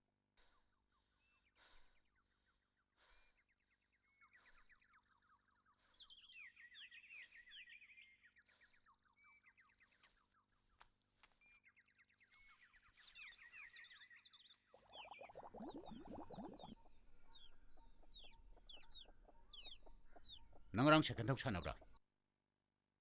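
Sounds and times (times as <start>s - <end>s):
small birds chirping: 0.4s - 22.0s
hen clucking: 15.2s - 22.0s.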